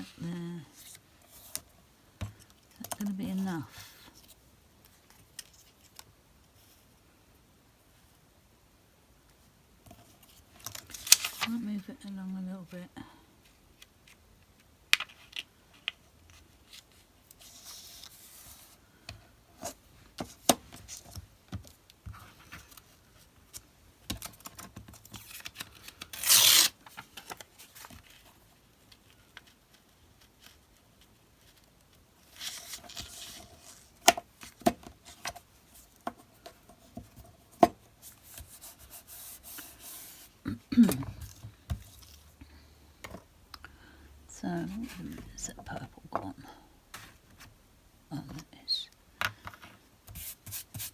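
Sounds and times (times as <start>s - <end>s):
paper rubbing and rustling: 25.1s - 34.0s.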